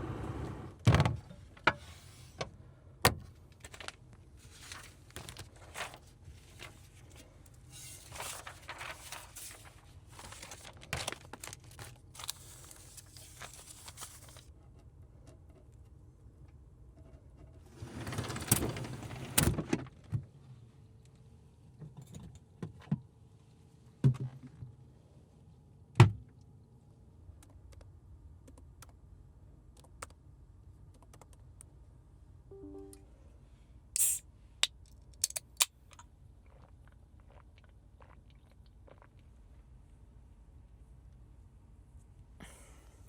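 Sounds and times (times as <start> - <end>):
short electronic beep: 32.5 - 33.1.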